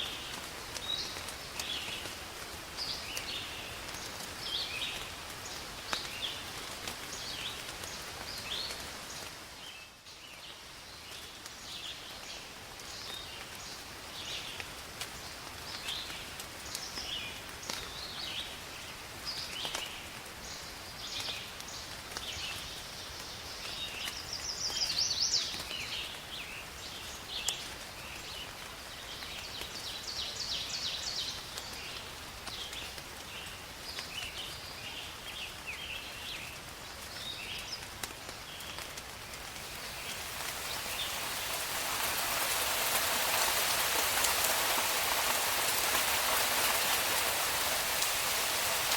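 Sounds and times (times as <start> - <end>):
steady rain falling: 0.0 - 48.9
birds chirping and trilling: 39.6 - 48.9.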